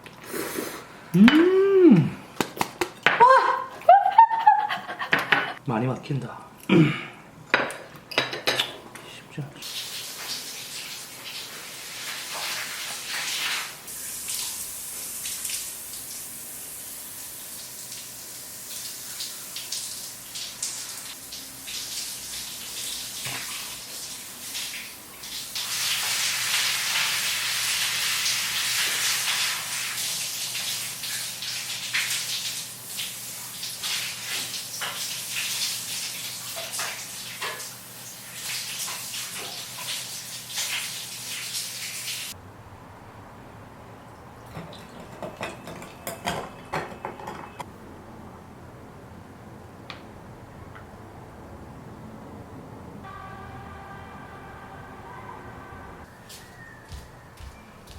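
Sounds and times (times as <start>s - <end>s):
dishes clinking and knocking: 5.1s - 5.6s, 7.5s - 8.8s, 44.5s - 47.6s
tap running water into sink: 18.8s - 42.0s.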